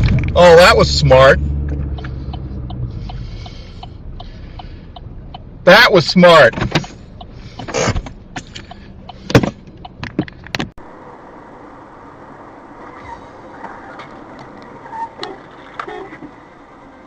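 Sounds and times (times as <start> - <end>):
steady road noise: 0.0 - 17.0
knocks and clicks inside car: 6.5 - 10.7.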